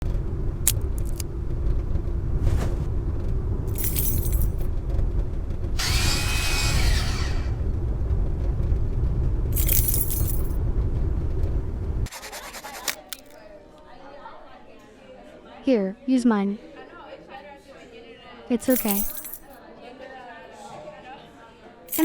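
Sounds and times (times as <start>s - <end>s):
bus rumbling from inside: 0.0s - 5.8s, 7.4s - 12.1s
high rattling jangling: 3.7s - 4.7s, 9.6s - 10.6s, 18.7s - 19.6s.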